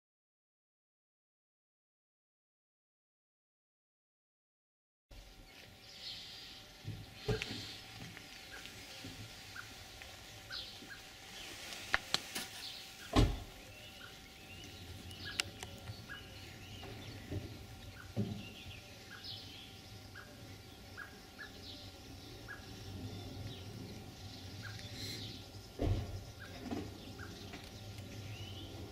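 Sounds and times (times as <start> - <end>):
birds chirping: 5.2 - 28.9
thump: 13.1 - 13.5, 25.8 - 26.9.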